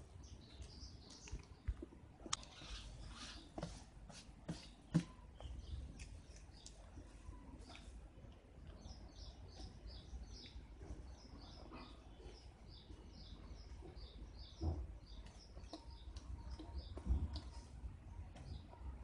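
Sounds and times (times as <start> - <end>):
small bird chirping: 8.7 - 17.7.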